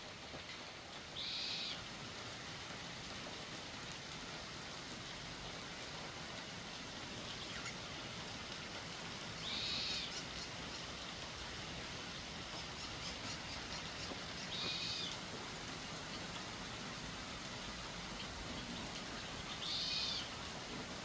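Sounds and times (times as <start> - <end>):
steady hiss: 0.0 - 21.0
high bird-like calls: 9.4 - 10.9, 12.6 - 15.2, 19.5 - 20.3.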